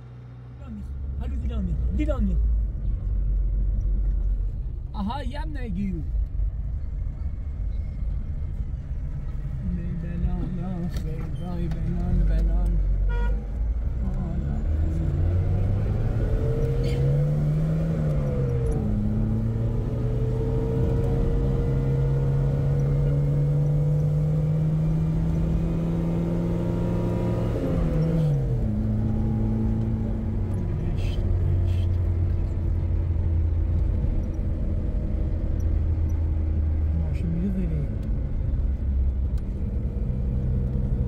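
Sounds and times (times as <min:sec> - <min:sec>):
car engine shifting gear: 0:14.2 - 0:36.9.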